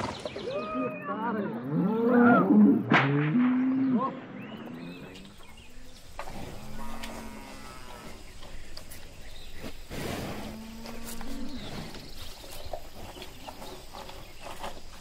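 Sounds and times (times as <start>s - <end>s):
cows mooing: 1.1s - 4.1s, 4.7s - 8.8s, 10.2s - 12.2s.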